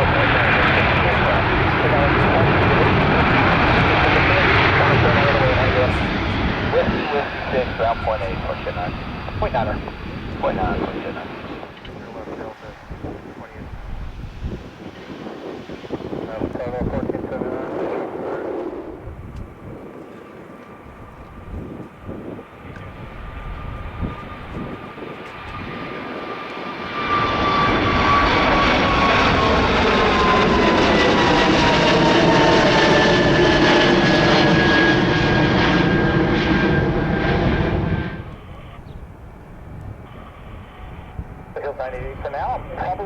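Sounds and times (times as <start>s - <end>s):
jet engines roaring: 0.0s - 43.0s.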